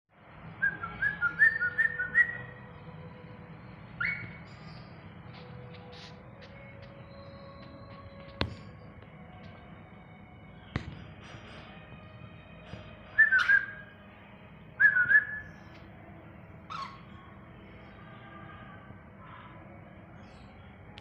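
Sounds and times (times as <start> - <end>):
cockatiel whistled calls: 4.0 - 4.4, 13.2 - 13.8, 14.8 - 15.6, 16.7 - 17.0.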